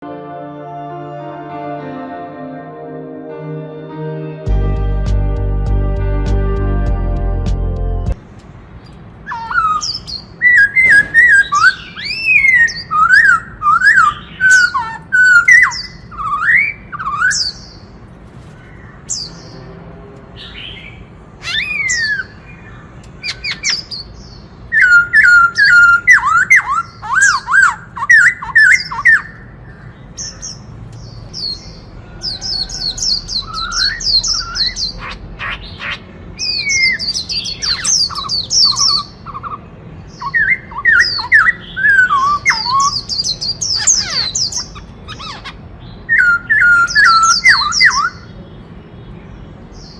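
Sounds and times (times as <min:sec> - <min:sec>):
bird singing whistled phrases: 0:09.3 - 0:17.7, 0:24.7 - 0:29.4, 0:32.7 - 0:35.0, 0:40.2 - 0:44.6, 0:46.1 - 0:48.3
bird chattering: 0:32.7 - 0:48.3.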